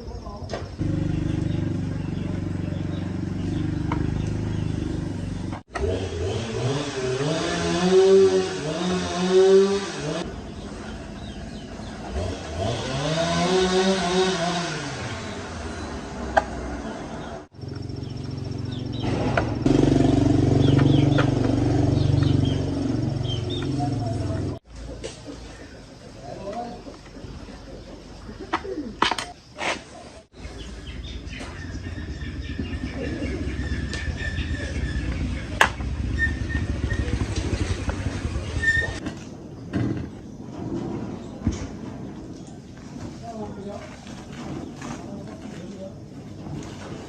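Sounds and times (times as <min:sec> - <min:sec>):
birds chirping: 0:00.0 - 0:46.2
small engine running: 0:00.8 - 0:10.2, 0:11.9 - 0:16.2.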